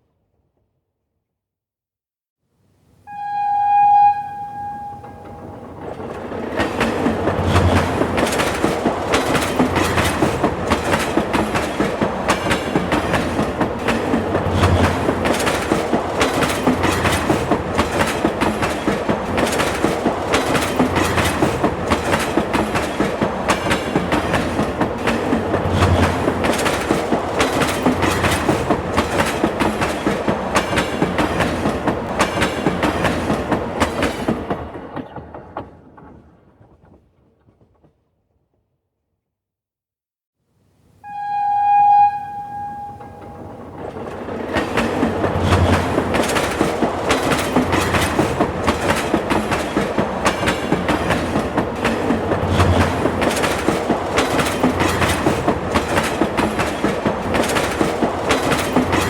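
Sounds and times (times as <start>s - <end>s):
train horn: 3.1s - 5.7s, 41.0s - 43.8s
train wheels clattering: 4.7s - 37.9s, 42.6s - 59.0s.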